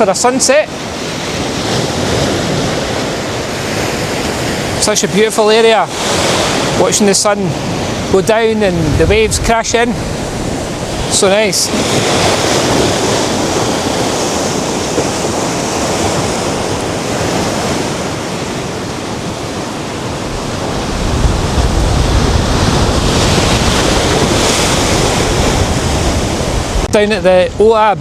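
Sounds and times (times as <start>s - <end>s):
surf breaking on shore: 0.0s - 28.0s
wind on microphone: 5.9s - 28.0s.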